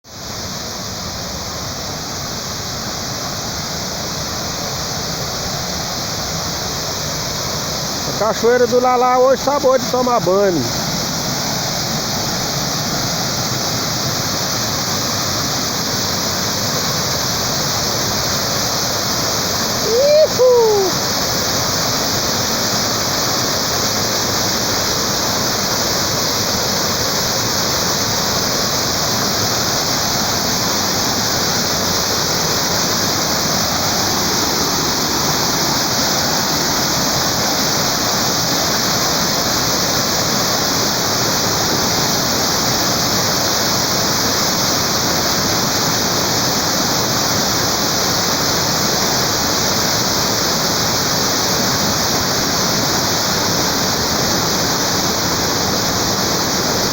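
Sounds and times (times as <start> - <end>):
waterfall rushing: 0.1 - 56.9.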